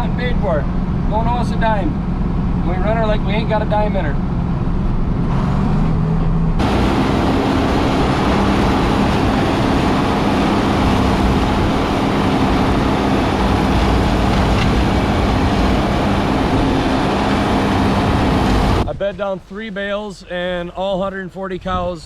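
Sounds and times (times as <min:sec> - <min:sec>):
loud rushing noise: 0:04.3 - 0:19.1
tractor diesel engine running: 0:06.6 - 0:18.9.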